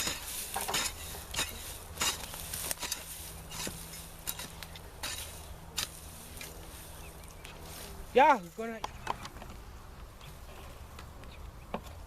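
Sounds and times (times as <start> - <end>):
digging in soil: 0.0 - 9.6.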